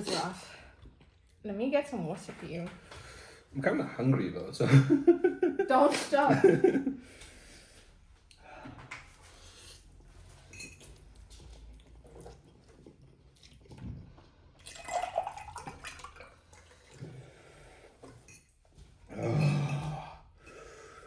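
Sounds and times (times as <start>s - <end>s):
dishes and utensils clinking: 0.0s - 0.5s, 10.3s - 11.0s
liquid sounds: 11.8s - 17.8s.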